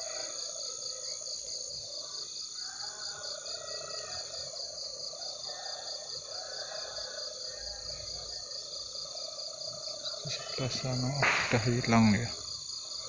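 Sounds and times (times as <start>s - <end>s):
crickets trilling: 0.0s - 13.0s
faint wavering insect sounds: 0.0s - 13.0s.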